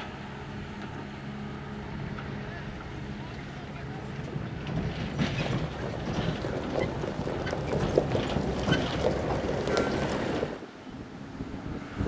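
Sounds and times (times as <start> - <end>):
excavator engine running: 0.0 - 10.6
rock and earth clattering: 2.1 - 10.6.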